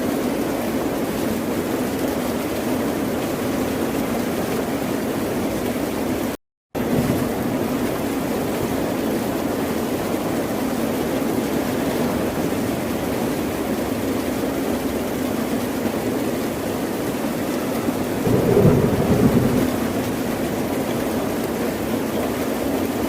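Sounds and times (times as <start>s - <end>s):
ocean waves washing: 15.5s - 23.0s
wave breaking: 18.2s - 21.0s.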